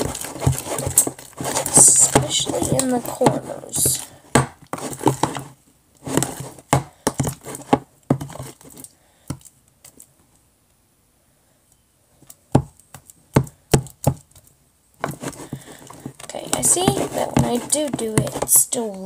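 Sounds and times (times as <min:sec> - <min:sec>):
spoon scraping mixing container: 0:00.0 - 0:08.9, 0:15.0 - 0:19.0.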